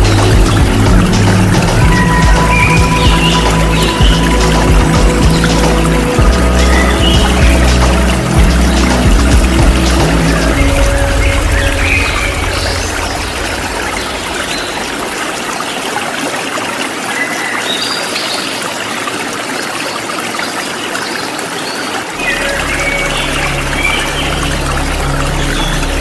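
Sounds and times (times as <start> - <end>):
low hum: 0.0 - 15.8, 22.2 - 26.0
waterfall hiss: 0.0 - 26.0.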